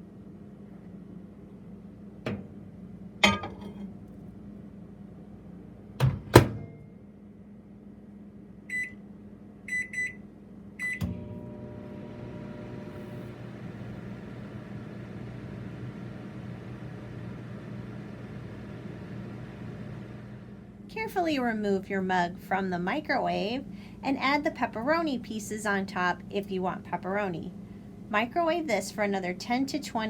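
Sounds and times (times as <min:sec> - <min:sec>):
microwave oven humming: 0:00.0 - 0:30.0
microwave switch thunk: 0:02.3 - 0:02.6, 0:06.0 - 0:06.7, 0:10.9 - 0:11.3
microwave door clunks: 0:06.0 - 0:06.8
keypad beeps: 0:09.7 - 0:10.2, 0:10.8 - 0:11.0.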